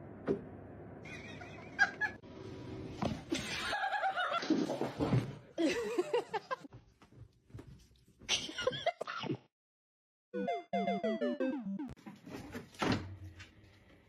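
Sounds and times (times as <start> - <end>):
people laughing: 1.1 - 2.2, 3.3 - 4.6, 5.6 - 6.7.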